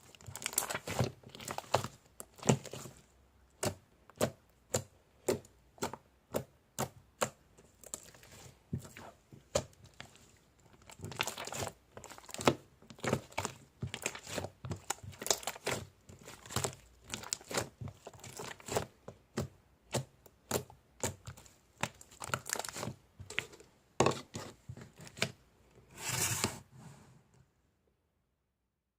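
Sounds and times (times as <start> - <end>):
brittle crunching and crackling: 0.1 - 2.9, 9.6 - 25.2.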